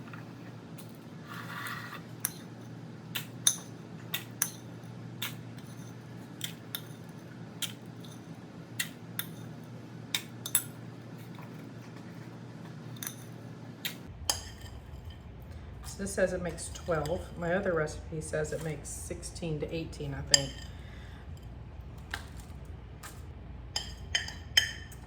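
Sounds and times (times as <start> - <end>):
utensils clinking on cups: 23.8 - 25.0.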